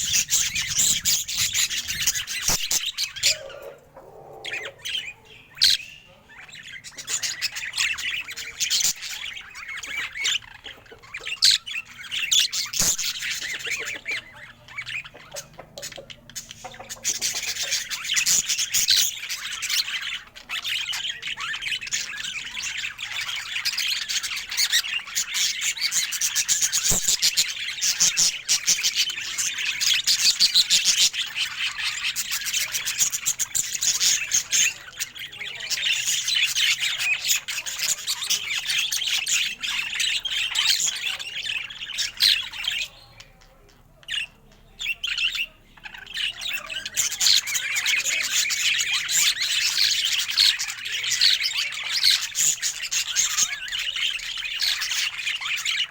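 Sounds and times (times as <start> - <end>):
budgerigar warbling and chirping: 0.0 - 55.9.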